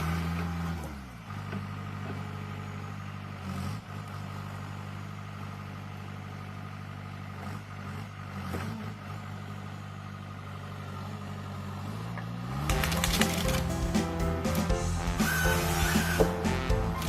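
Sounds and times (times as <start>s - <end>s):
heavy machine engine running: 0.0s - 17.0s.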